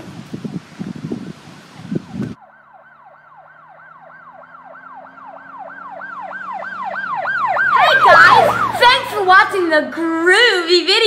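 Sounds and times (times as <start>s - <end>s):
siren yelping: 1.8s - 9.6s.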